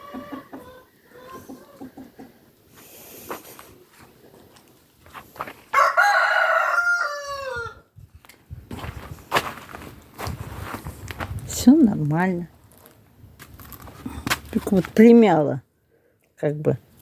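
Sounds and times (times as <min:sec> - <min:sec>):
rooster crowing: 0:05.7 - 0:07.9.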